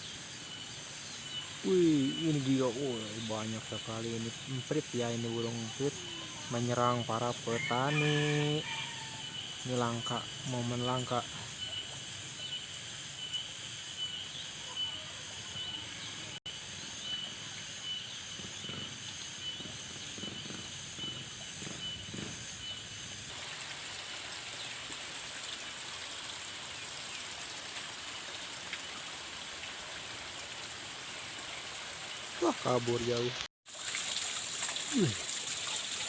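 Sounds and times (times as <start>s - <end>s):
steady hiss: 0.0s - 7.8s, 20.1s - 36.0s.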